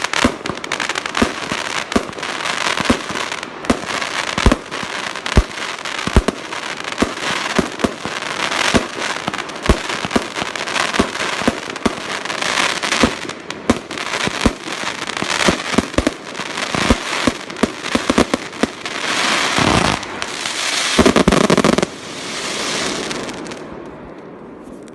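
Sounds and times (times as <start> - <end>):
firework bangs: 0.0 - 23.6
firework crackle: 0.0 - 23.7.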